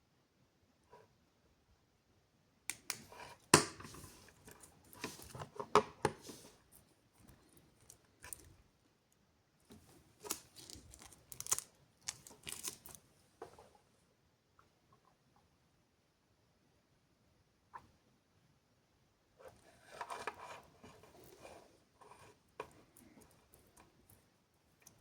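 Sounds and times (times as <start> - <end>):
packaging rustling: 10.2 - 13.0.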